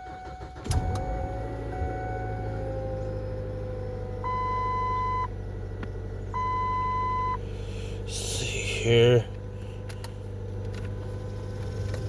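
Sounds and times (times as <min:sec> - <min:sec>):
car warning chime: 0:00.0 - 0:02.9, 0:04.2 - 0:05.4, 0:06.4 - 0:07.4
car engine fast idle whine: 0:00.0 - 0:12.0.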